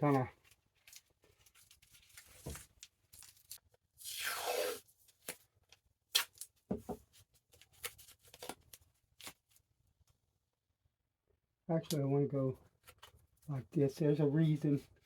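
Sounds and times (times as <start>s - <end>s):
tape ripping: 3.2s - 5.4s.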